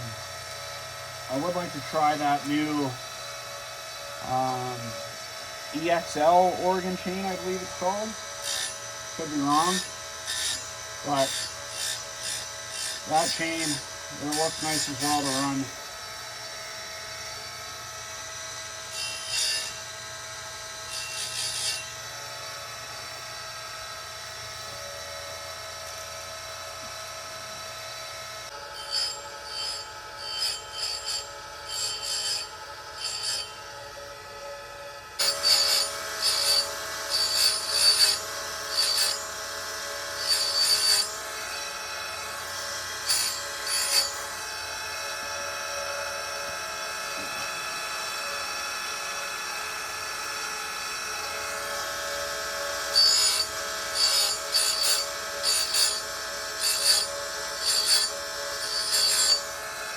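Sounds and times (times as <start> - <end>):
grinder motor hum: 0.0 - 59.9
short bright grinding rasps: 4.2 - 15.7, 18.9 - 19.8, 20.9 - 22.1, 28.7 - 33.7, 35.2 - 39.4, 40.2 - 44.4, 52.9 - 59.6.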